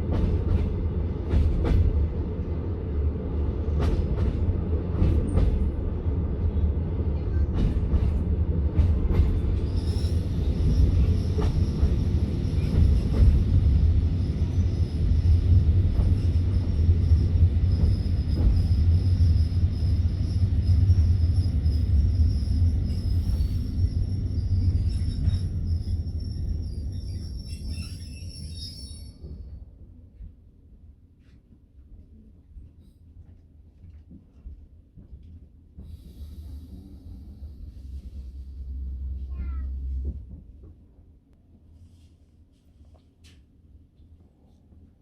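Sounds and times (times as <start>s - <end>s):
train rumbling on rails: 0.0s - 45.0s
rail joint clicks: 0.1s - 2.0s, 3.7s - 5.8s, 7.2s - 13.6s, 15.9s - 19.4s
high wheel squeal: 17.9s - 29.2s.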